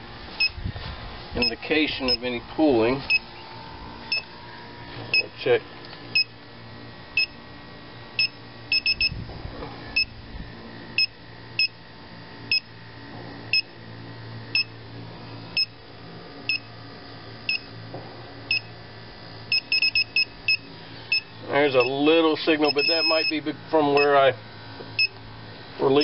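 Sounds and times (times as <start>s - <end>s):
low steady hum: 0.0s - 26.0s
leak detector beeping: 0.3s - 0.6s, 1.4s - 2.4s, 3.0s - 3.4s, 4.0s - 4.4s, 5.1s - 5.4s, 6.1s - 6.4s, 7.1s - 7.4s, 8.2s - 9.2s, 9.9s - 10.2s, 10.9s - 11.8s, 12.5s - 12.8s, 13.5s - 13.8s, 14.5s - 14.8s, 15.4s - 15.8s, 16.4s - 16.8s, 17.4s - 17.8s, 18.5s - 18.8s, 19.5s - 24.3s, 25.0s - 25.2s.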